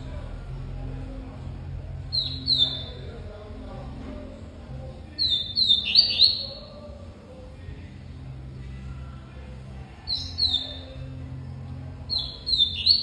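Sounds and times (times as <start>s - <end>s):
bird chirping: 2.1s - 3.2s, 5.1s - 6.9s, 10.0s - 11.2s, 12.0s - 13.0s.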